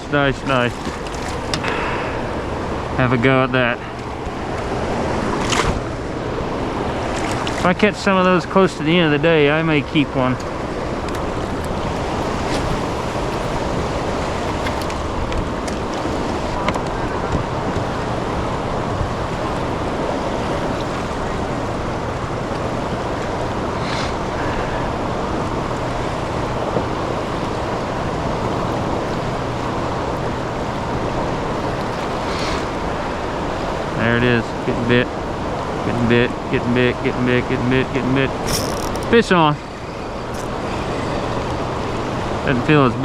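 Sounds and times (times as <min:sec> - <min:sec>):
fast river current rushing: 0:00.0 - 0:43.0
wind on microphone: 0:10.3 - 0:36.6.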